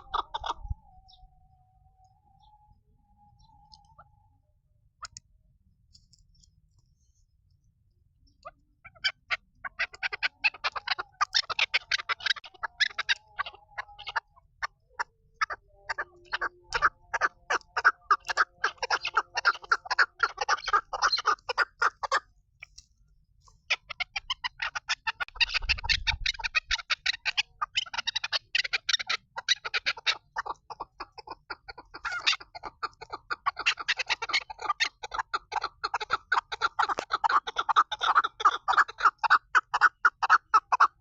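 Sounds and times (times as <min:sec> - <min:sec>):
partridge clucking calls: 0:00.0 - 0:01.2, 0:03.4 - 0:04.2, 0:05.0 - 0:05.2, 0:08.2 - 0:41.0.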